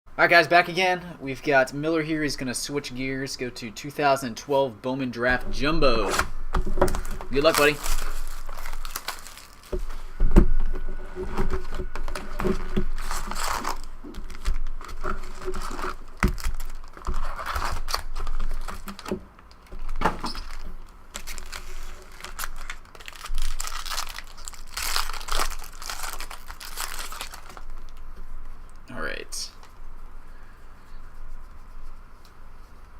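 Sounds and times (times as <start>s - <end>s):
card wrappers crinkling: 6.9s - 10.1s, 11.8s - 28.1s.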